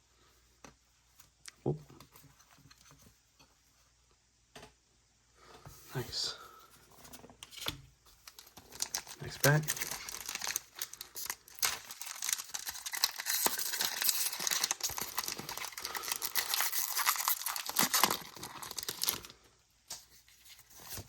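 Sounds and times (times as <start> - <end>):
foil wrapper tearing and crinkling: 8.2 - 19.5.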